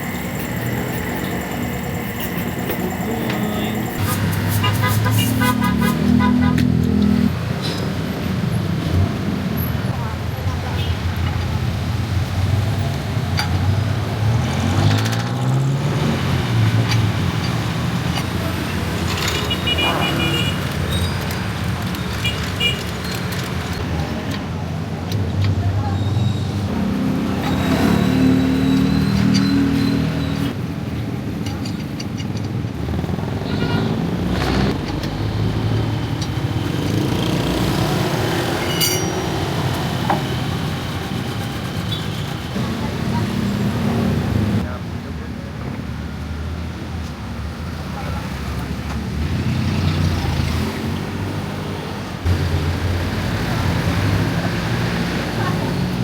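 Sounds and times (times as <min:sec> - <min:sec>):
road traffic rumble: 0:00.0 - 0:56.0
vehicle engine accelerating: 0:32.8 - 0:38.6.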